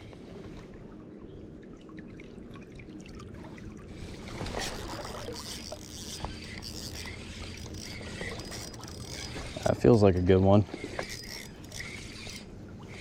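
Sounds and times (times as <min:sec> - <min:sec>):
water sloshing around legs: 0:01.5 - 0:13.0.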